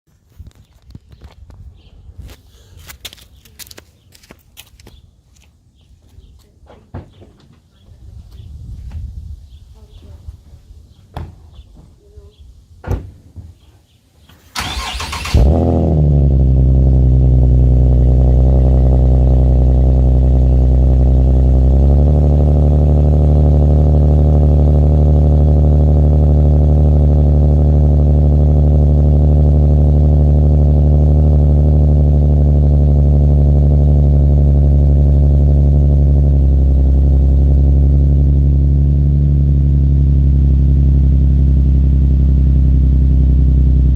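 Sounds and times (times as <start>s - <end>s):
car engine starting and idling: 14.5s - 43.9s.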